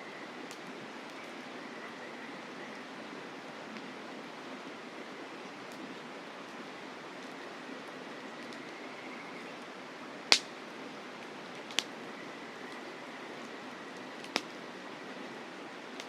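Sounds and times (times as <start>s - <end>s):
campfire crackling pops: 10.3s - 12.0s, 14.2s - 14.6s.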